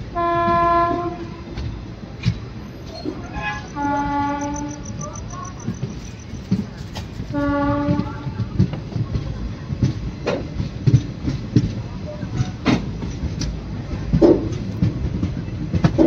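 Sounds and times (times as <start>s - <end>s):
moving train running noise: 0.0s - 16.0s
train horn blasts: 0.1s - 1.6s, 3.2s - 5.2s, 7.3s - 8.4s
wheels clacking over rail joints: 0.4s - 16.0s.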